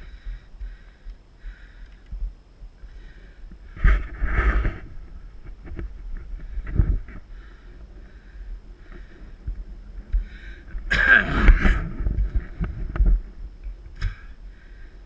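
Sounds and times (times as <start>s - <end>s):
wind: 0.0s - 15.0s
bike tyres rumbling on dirt: 2.9s - 14.8s.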